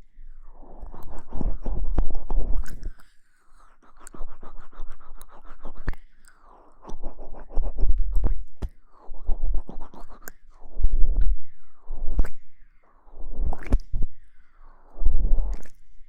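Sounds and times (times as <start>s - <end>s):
scratching and rustling on microphone: 0.8s - 2.8s, 6.8s - 11.3s.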